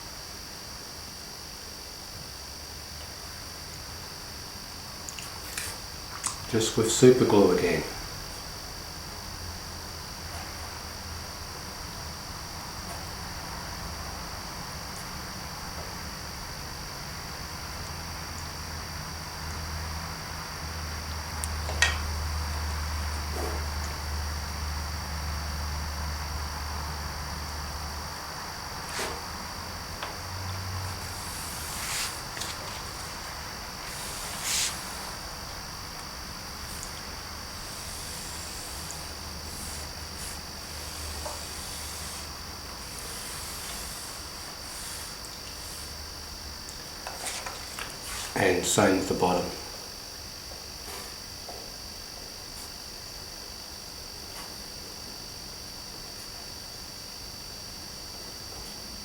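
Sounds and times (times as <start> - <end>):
background hum: 0.0 - 59.0
high-pitched whine and hiss: 0.0 - 59.0
handling rustles and scrapes: 31.0 - 35.2, 47.1 - 48.4.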